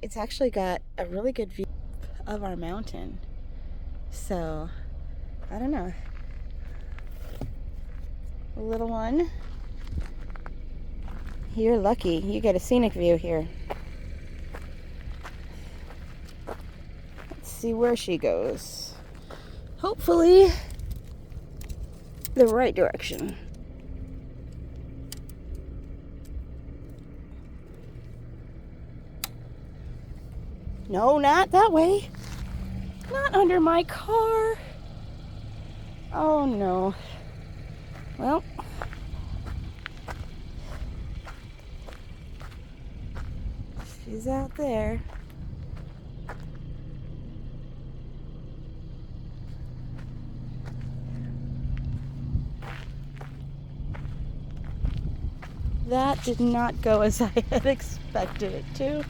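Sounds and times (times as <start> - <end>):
car engine idling: 0.0 - 59.0
sharp clicks: 29.1 - 29.6.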